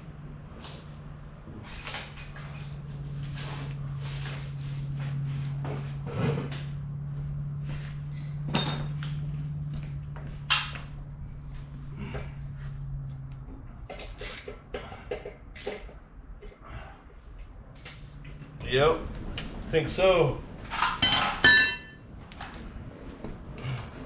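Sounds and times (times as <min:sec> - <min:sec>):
steady low hum: 0:00.0 - 0:24.0
tools and metal parts clinking: 0:00.6 - 0:05.0, 0:08.1 - 0:09.2, 0:20.6 - 0:22.1.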